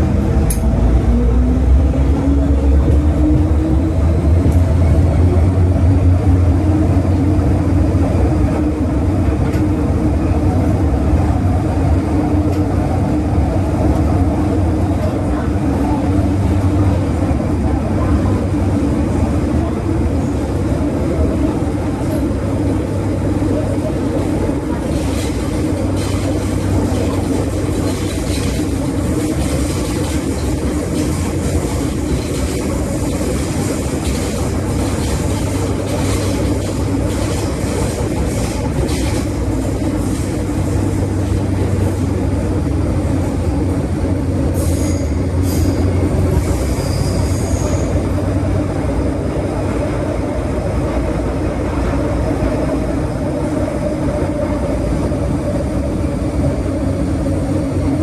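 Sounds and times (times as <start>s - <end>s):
metro train rumble: 0.0s - 58.0s
high-pitched wheel squeal: 44.6s - 45.9s, 46.5s - 48.0s.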